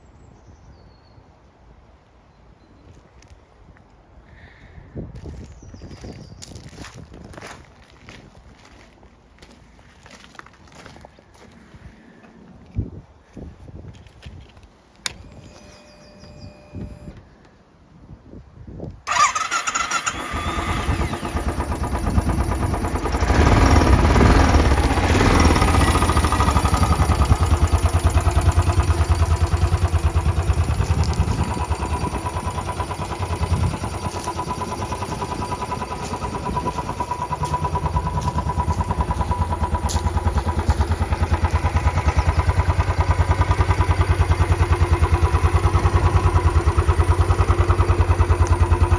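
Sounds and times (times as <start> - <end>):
motorcycle engine starting and idling: 15.0 - 17.2, 19.0 - 48.9.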